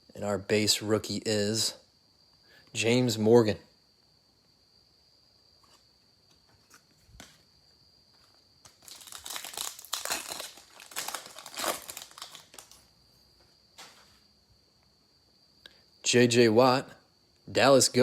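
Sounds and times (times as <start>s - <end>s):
foil wrapper crinkling and tearing: 8.6s - 12.9s.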